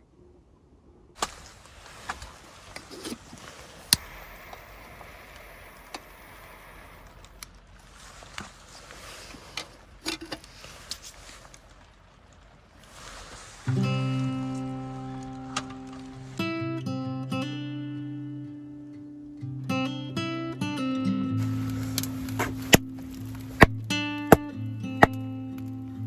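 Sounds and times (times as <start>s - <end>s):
steady hiss: 1.2s - 11.6s, 12.8s - 16.3s, 21.4s - 23.7s
small objects clattering: 7.0s - 16.2s, 21.4s - 24.4s.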